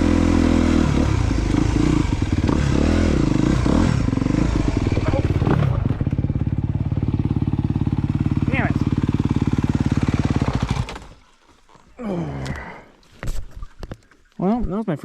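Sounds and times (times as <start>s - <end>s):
motorcycle engine revving: 0.0s - 11.3s.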